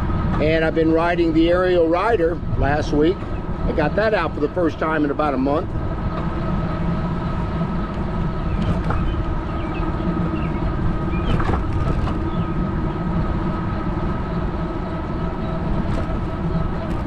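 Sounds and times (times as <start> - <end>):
tyre and wind rumble: 0.0 - 17.0
electric bike motor whine: 5.7 - 17.0.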